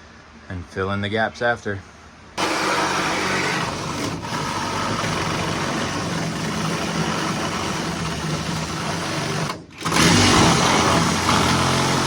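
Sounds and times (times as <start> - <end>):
power tool cutting sheet metal: 2.4 - 12.0.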